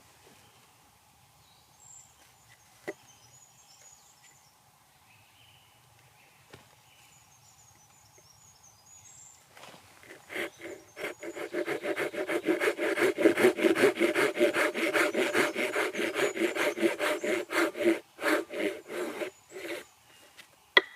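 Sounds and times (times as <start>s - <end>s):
small birds chirping: 10.1s - 12.5s.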